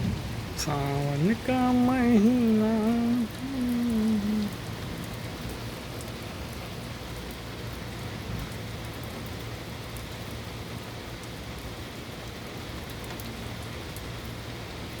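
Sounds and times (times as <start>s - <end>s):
low steady hum: 0.0s - 10.9s
raindrop ticks: 0.0s - 15.0s
steady rain falling: 0.0s - 15.0s.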